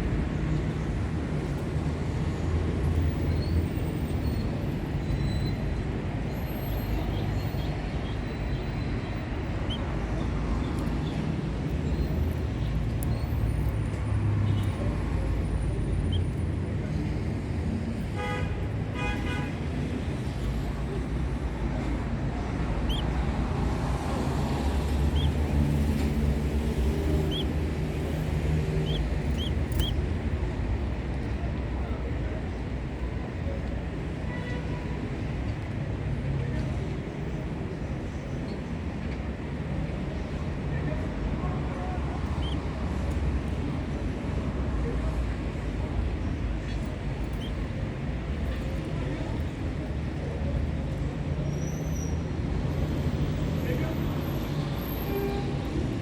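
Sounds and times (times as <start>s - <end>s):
road traffic rumble: 0.0s - 56.0s
canaries chirping: 9.5s - 10.0s, 22.8s - 30.1s, 42.2s - 42.8s, 46.7s - 47.7s.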